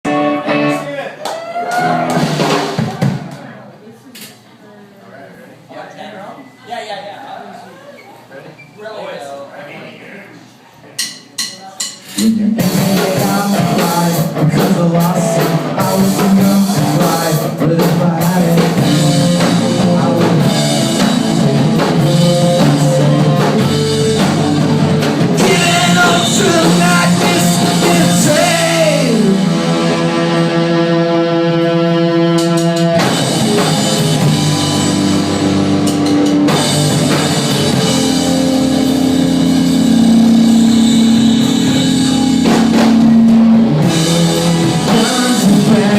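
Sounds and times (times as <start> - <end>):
rock band playing live: 0.0 - 3.4, 12.0 - 45.9
guitar sliding down in pitch: 18.9 - 45.8.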